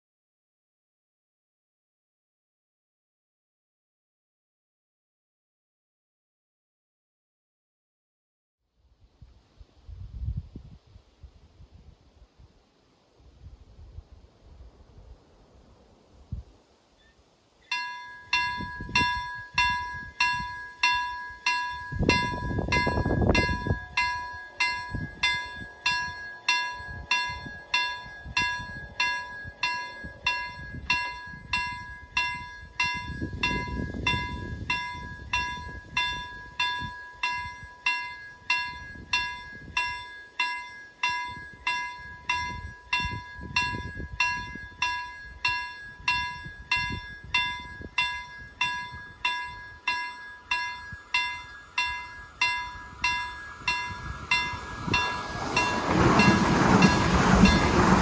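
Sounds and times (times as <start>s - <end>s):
railroad crossing bells ringing: 17.0s - 58.0s.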